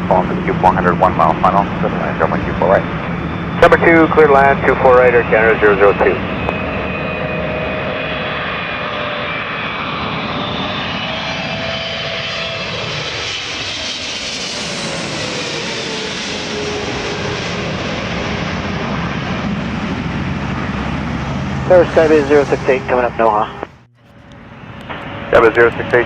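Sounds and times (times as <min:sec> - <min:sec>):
airliner passing overhead: 0:00.0 - 0:26.0.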